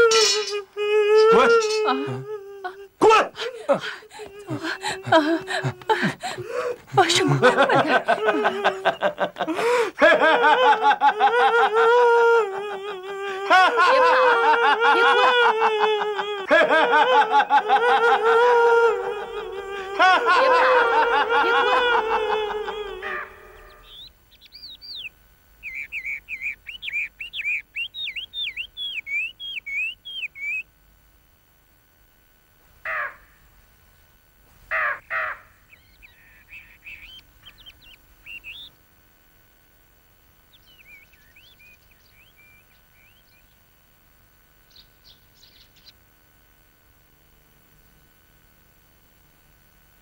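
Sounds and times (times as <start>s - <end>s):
harsh caws: 17.4s - 24.0s, 32.8s - 33.5s, 34.6s - 37.0s
birds chirping: 19.1s - 30.8s, 34.7s - 38.9s, 40.4s - 43.9s, 44.6s - 46.1s.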